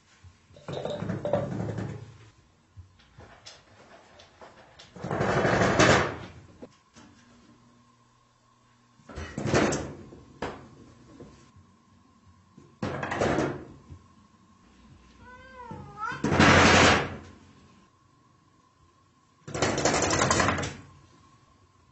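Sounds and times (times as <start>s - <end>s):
sliding door rattling: 4.9s - 6.3s
cat meowing: 15.2s - 16.3s.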